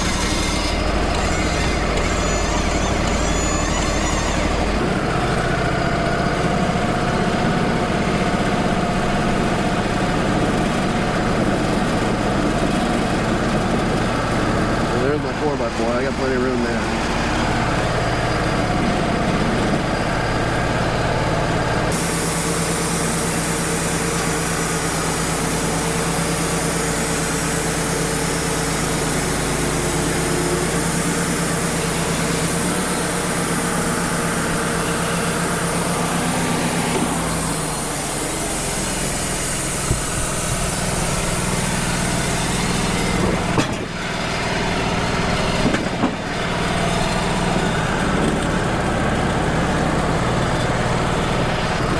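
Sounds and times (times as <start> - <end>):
band blade sawing through log: 0.0 - 4.7
sawmill engine droning: 0.0 - 51.9.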